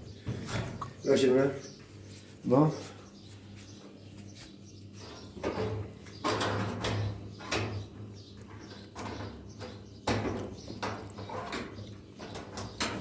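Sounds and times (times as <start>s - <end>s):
scraping and knocking noises: 3.7s - 13.0s.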